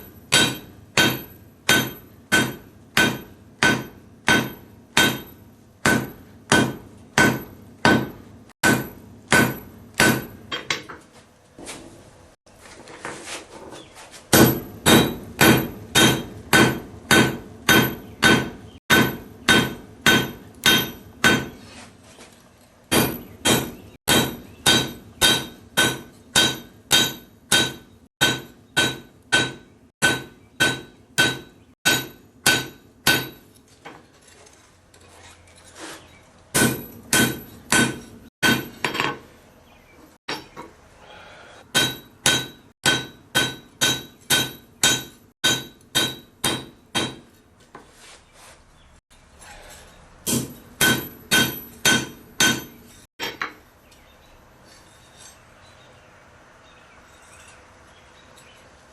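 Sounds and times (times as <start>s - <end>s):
hammer blows on anvil: 0.0s - 10.8s, 14.3s - 21.7s, 22.9s - 33.6s, 41.7s - 47.4s, 50.2s - 53.5s.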